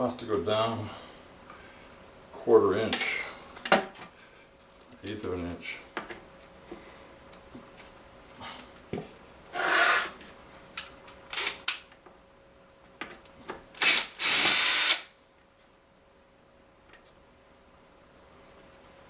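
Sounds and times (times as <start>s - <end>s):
cordless screw gun driving screw: 13.8s - 15.1s.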